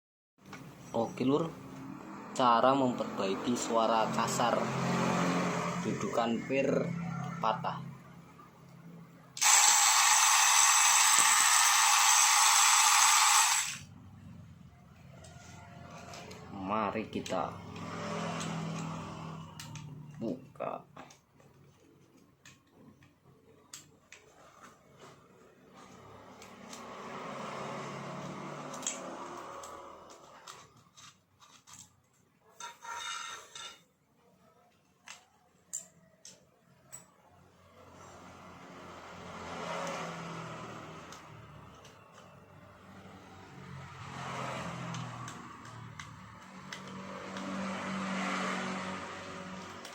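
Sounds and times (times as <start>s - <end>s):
trimmer rattling buzz: 9.4s - 13.9s
plastic parts clicking and knocking: 28.7s - 32.3s
rattling scrape: 32.6s - 33.9s.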